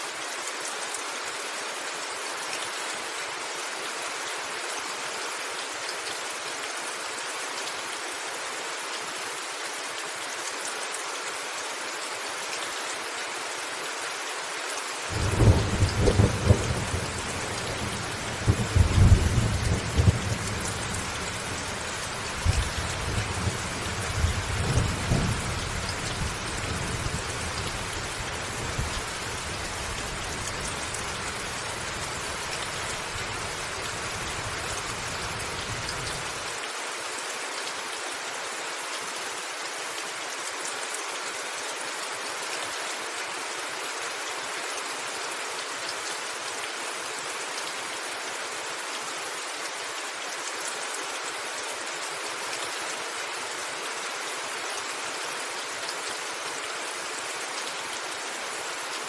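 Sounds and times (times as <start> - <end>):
steady rain hiss: 0.0 - 59.0
thunder rumbling and cracking: 15.1 - 21.5.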